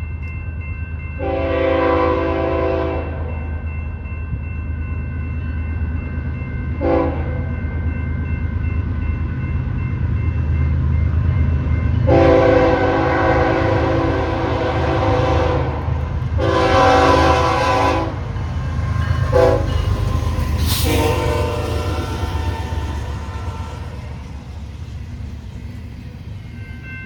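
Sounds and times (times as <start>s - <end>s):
train air horn blasts: 1.2s - 3.2s, 6.8s - 7.3s, 12.1s - 18.3s, 19.2s - 24.3s
locomotive engine rumble: 8.5s - 27.0s.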